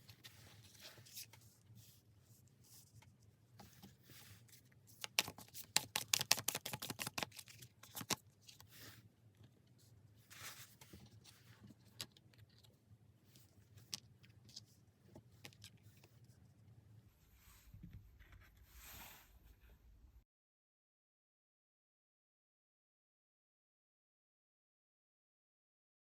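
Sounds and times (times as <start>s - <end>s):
cards clicking and sliding: 5.0s - 8.7s
cards shuffling: 5.0s - 8.9s.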